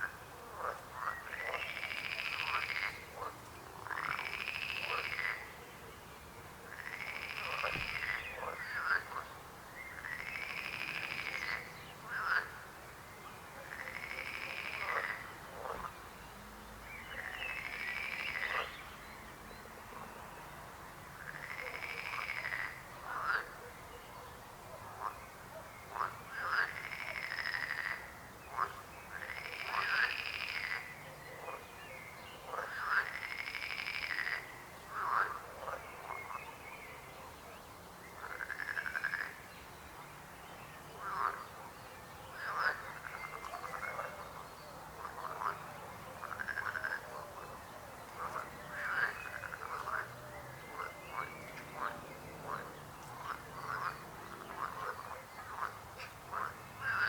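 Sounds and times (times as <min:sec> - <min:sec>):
frogs croaking: 0:00.0 - 0:05.6, 0:06.5 - 0:16.1, 0:16.8 - 0:18.9, 0:21.2 - 0:23.7, 0:24.8 - 0:57.0.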